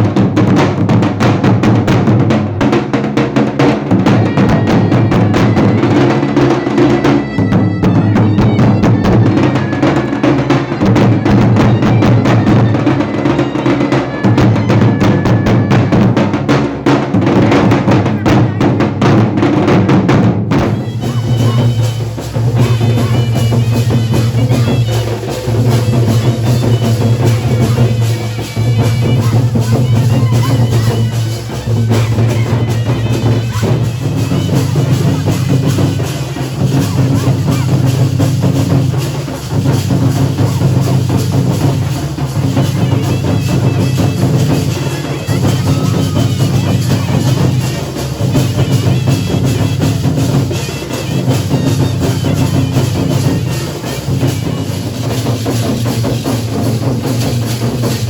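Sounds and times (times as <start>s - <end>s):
drums in fast rhythm: 0.0s - 58.0s.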